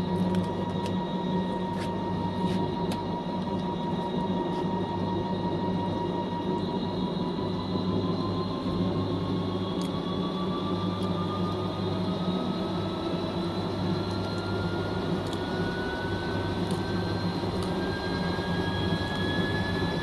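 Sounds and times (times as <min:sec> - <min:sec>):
washing machine spinning: 0:00.0 - 0:20.0.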